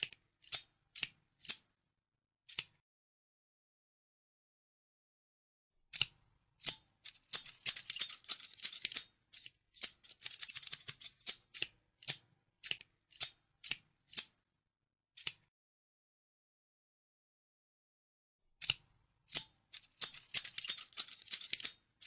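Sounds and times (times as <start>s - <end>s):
scissors snipping: 0.0s - 1.6s, 2.5s - 2.8s, 5.9s - 14.3s, 15.2s - 15.5s, 18.6s - 21.8s.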